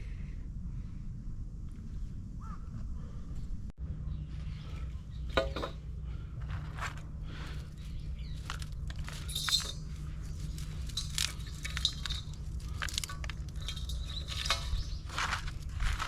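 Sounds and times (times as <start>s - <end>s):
steady low rumble: 0.0s - 16.0s
firewood snapping and crunching: 6.6s - 16.0s.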